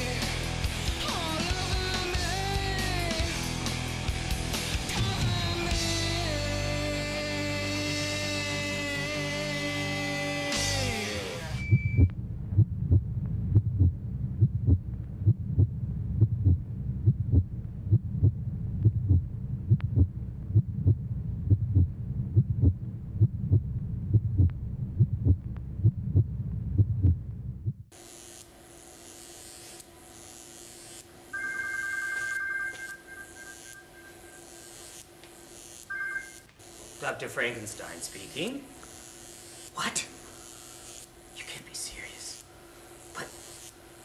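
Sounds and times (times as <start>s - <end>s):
low heartbeat: 11.7s - 27.9s
telephone ringing: 31.3s - 35.0s, 35.8s - 36.5s.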